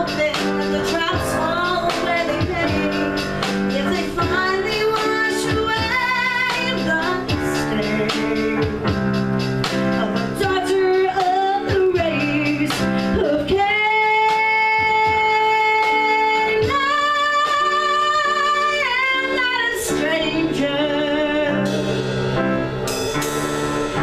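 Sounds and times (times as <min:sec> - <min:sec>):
woman singing a ballad: 0:00.0 - 0:22.1
piano and drum accompaniment: 0:00.0 - 0:24.0.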